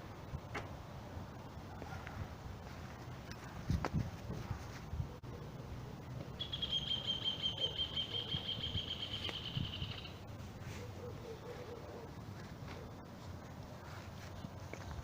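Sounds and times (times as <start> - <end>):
bird high even trill: 6.4 - 10.2.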